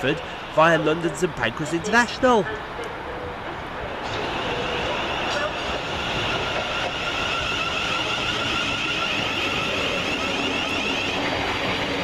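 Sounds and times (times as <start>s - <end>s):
train rumble: 0.0s - 12.0s
train wheels squealing: 3.1s - 12.0s.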